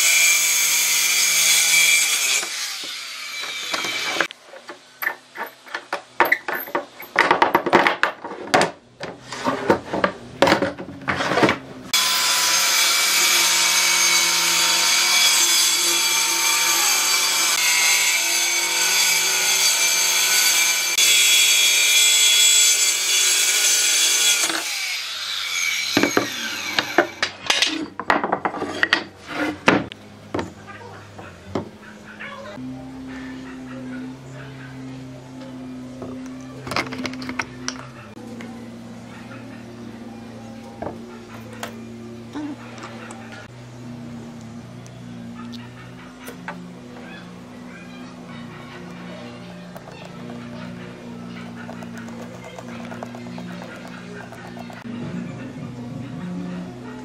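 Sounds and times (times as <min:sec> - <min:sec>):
power tool working wood: 0:00.0 - 0:04.3, 0:11.9 - 0:27.3.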